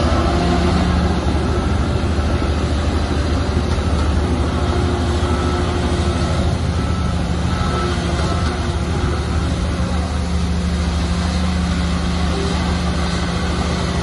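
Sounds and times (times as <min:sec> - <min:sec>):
diesel machinery engine drone: 0:00.0 - 0:14.0.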